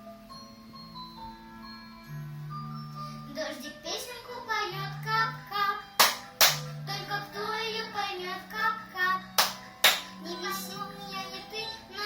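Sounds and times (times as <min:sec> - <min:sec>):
girl singing children's song: 0:03.2 - 0:12.0
instrumental accompaniment: 0:06.0 - 0:06.8, 0:09.4 - 0:10.2
sharp hand claps: 0:06.0 - 0:06.8, 0:09.4 - 0:10.2.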